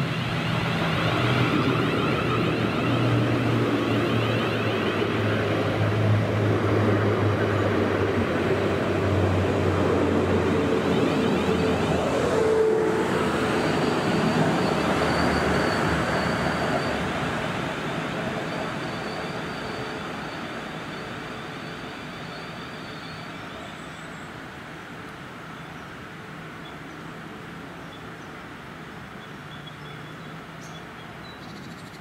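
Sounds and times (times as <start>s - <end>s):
train wheels on rail: 0.0s - 23.7s.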